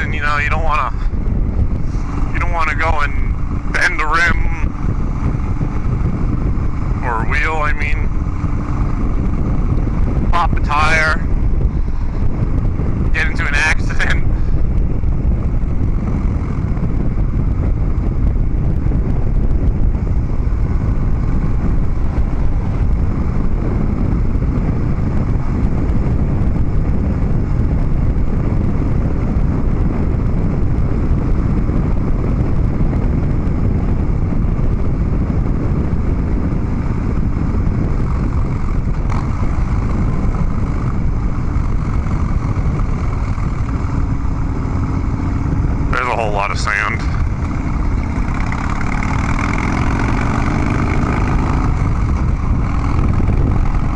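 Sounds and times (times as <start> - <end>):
motorcycle engine rumbling: 0.0 - 53.9.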